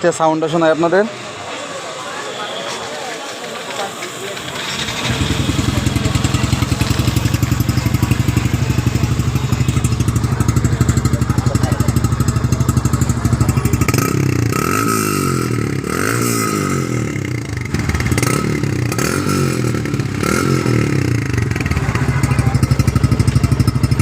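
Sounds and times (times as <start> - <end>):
motorcycle engine revving and idling: 4.4 - 24.0.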